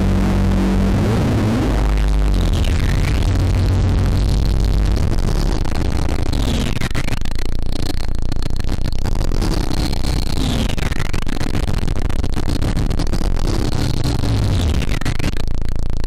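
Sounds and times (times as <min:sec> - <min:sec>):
swooping synth sweep: 0:00.0 - 0:06.9
synthesizer noisy drone: 0:00.0 - 0:16.0.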